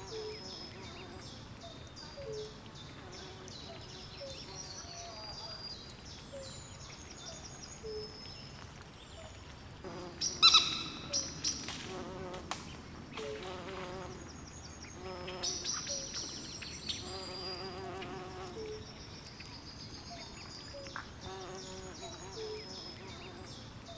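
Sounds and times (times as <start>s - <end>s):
low trilling calls: 10.2s - 11.4s.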